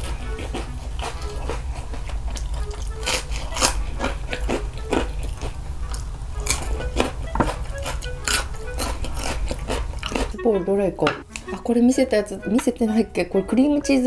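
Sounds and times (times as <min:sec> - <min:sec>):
person crunching crispy food: 0:00.0 - 0:07.2, 0:07.8 - 0:10.4.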